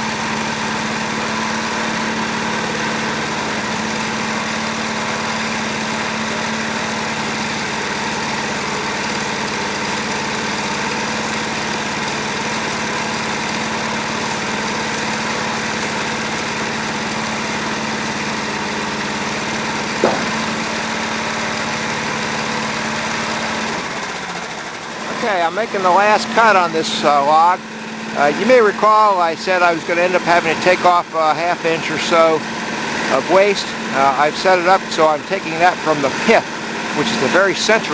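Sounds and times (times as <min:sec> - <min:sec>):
sawmill engine running: 0:00.0 - 0:37.9
sharp knock: 0:20.0 - 0:20.8.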